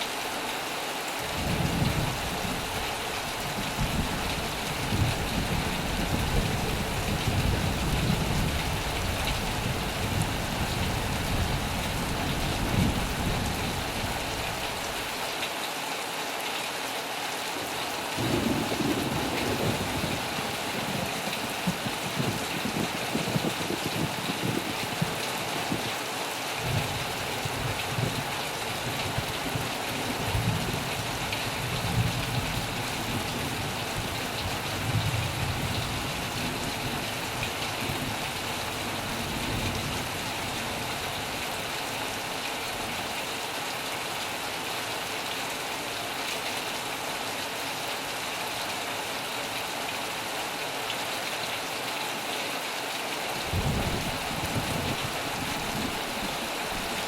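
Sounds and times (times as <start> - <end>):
heavy rain: 0.0 - 57.0
thunder rumbling: 3.5 - 14.6, 18.2 - 25.8, 53.5 - 57.0.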